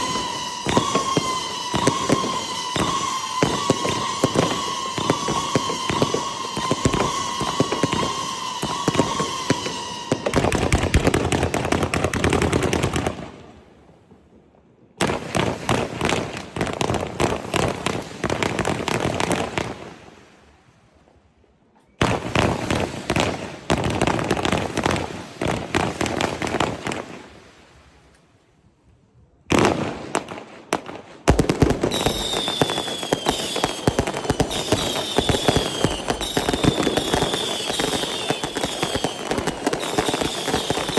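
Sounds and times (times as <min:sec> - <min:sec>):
fireworks whistling: 0:00.0 - 0:13.4, 0:31.3 - 0:40.9
fireworks crackling: 0:00.0 - 0:14.3, 0:15.0 - 0:20.3, 0:22.0 - 0:27.6, 0:29.5 - 0:40.9.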